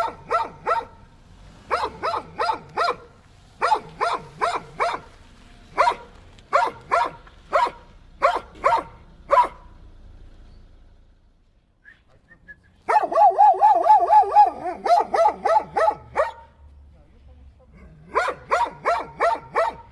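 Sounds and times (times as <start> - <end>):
dog barking: 0.0 - 9.7, 12.8 - 16.6, 17.8 - 19.9.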